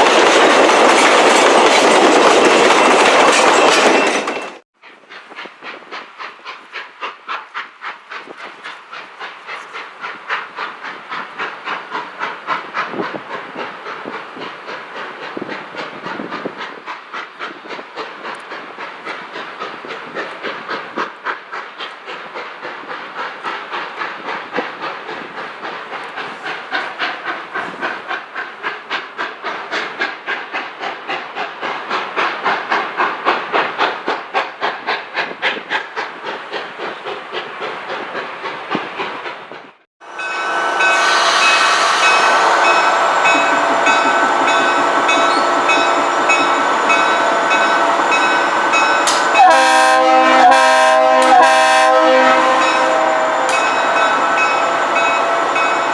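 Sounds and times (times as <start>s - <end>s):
train running rhythmically: 0.0s - 55.9s
multi-tone train horn: 40.0s - 45.5s, 49.1s - 55.9s.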